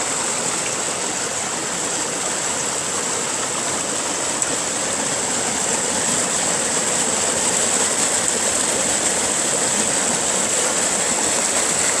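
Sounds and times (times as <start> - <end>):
stream rushing over stones: 0.0 - 12.0.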